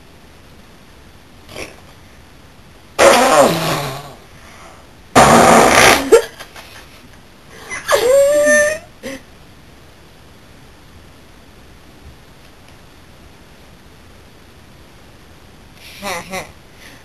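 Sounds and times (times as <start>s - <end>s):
person making fart noises: 1.5s - 1.9s, 3.0s - 4.3s, 5.1s - 6.5s.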